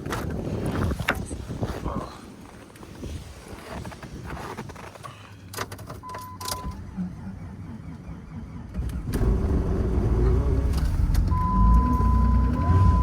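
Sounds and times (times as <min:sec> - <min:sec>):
car engine cranking: 0:05.5 - 0:13.0.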